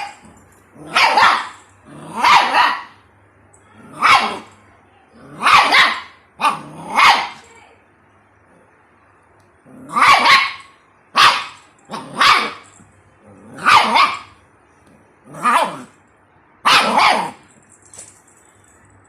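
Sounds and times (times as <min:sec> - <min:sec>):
puppy barking: 0:00.8 - 0:03.0, 0:03.9 - 0:04.6, 0:05.3 - 0:07.4, 0:09.9 - 0:12.8, 0:13.5 - 0:14.4, 0:16.6 - 0:17.4.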